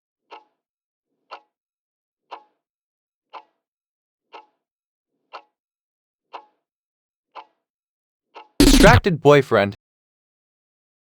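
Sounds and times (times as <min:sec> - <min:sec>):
clock ticking: 0:08.6 - 0:09.1.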